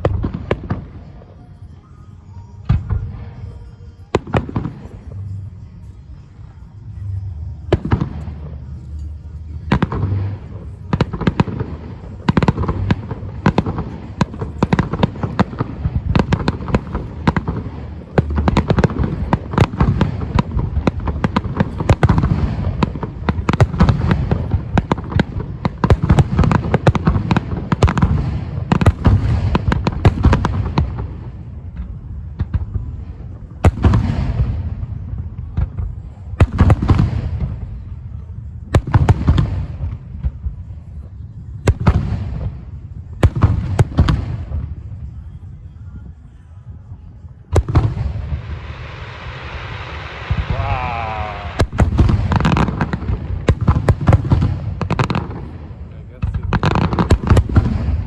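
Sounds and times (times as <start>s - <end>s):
low rumble: 2.6s - 56.3s.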